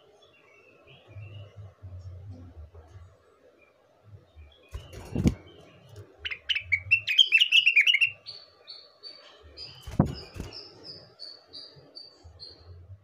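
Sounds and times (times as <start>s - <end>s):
bird song chirps and whistles: 4.4s - 12.8s.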